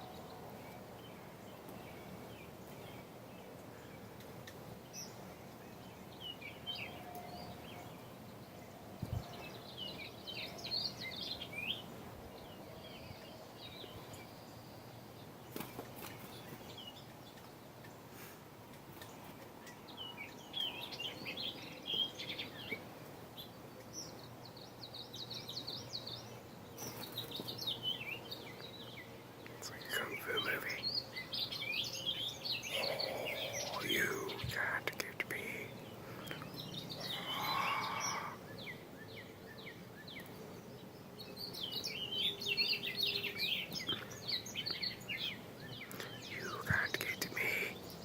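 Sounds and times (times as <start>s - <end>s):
low steady background noise: 0.0s - 48.0s
small bird chirping: 18.9s - 48.0s.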